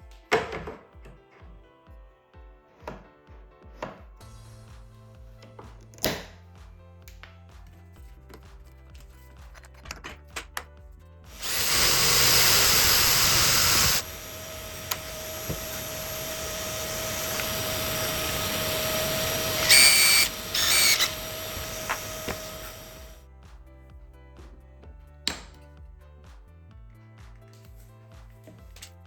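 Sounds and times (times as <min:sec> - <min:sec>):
electric power tool whining: 0:11.3 - 0:23.2.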